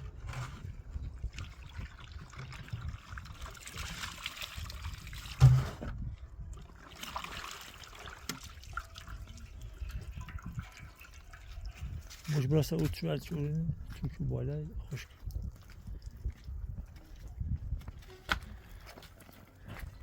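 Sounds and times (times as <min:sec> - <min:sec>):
water trickling and pouring: 0:00.2 - 0:17.5
loud thump: 0:05.4 - 0:06.0.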